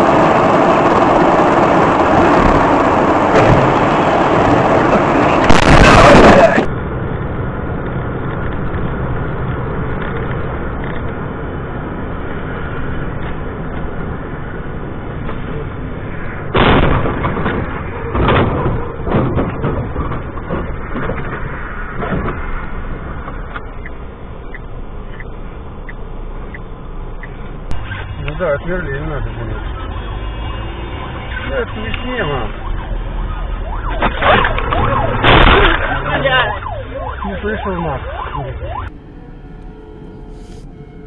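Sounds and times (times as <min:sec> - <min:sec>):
car road and engine noise: 0:00.0 - 0:41.0
loud thumps: 0:16.5 - 0:22.4.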